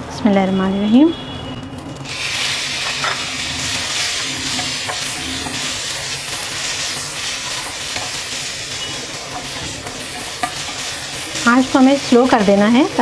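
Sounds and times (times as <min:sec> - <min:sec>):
tomatoes sizzling in hot oil: 0:02.0 - 0:13.0
wooden spatula scraping a pan: 0:02.1 - 0:12.7.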